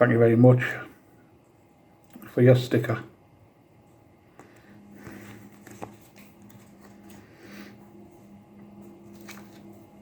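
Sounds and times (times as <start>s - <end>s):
low steady hum: 0.0s - 10.0s
sticker sheets rustling: 5.0s - 7.6s, 8.8s - 10.0s.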